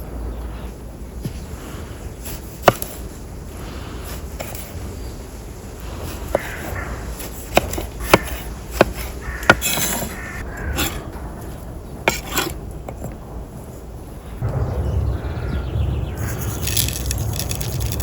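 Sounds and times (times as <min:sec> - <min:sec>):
rubbing and rustling: 0:16.2 - 0:18.0.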